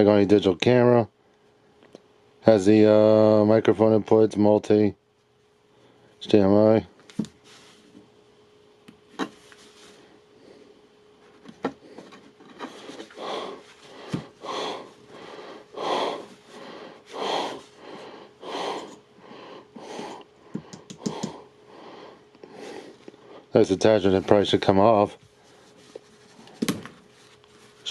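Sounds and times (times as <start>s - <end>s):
person breathing close to microphone: 11.8s - 23.5s.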